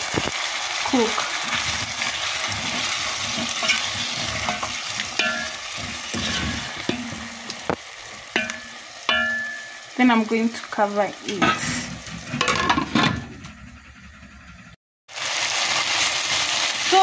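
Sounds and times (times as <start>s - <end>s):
beef and onions sizzling: 0.0s - 13.5s, 15.1s - 17.0s
spatula scraping a pan: 0.9s - 9.9s, 11.3s - 14.8s.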